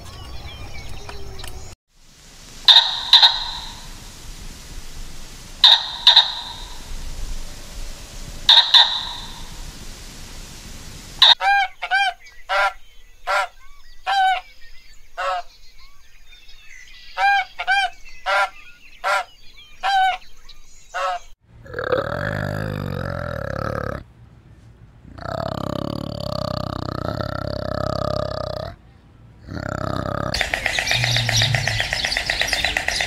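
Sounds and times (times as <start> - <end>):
geese honking: 2.6 - 4.2, 5.6 - 7.0, 8.4 - 10.3, 10.9 - 13.5, 15.2 - 15.5, 30.4 - 33.0
orangutan low drawn-out call: 2.6 - 4.2, 5.6 - 11.7, 21.0 - 24.0, 29.4 - 33.0.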